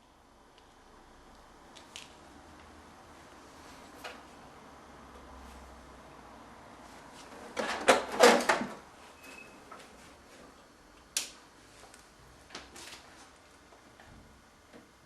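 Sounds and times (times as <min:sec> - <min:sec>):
faint steady hum: 0:00.0 - 0:15.0
printer clattering: 0:07.3 - 0:08.8.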